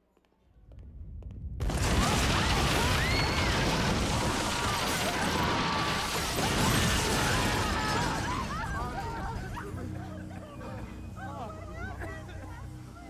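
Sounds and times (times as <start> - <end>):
music: 7.2 - 13.0.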